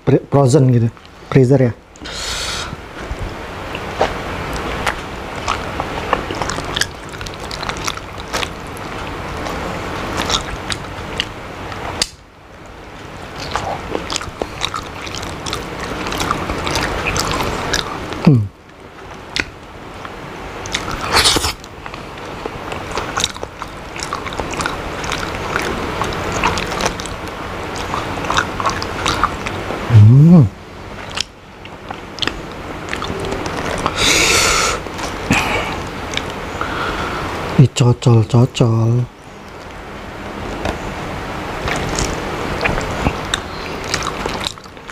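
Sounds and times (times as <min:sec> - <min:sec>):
short low vocal sound: 0:18.2 - 0:18.6, 0:29.9 - 0:30.6
wet mouth clicks and smacks: 0:20.6 - 0:21.7, 0:22.4 - 0:29.6, 0:31.1 - 0:34.4.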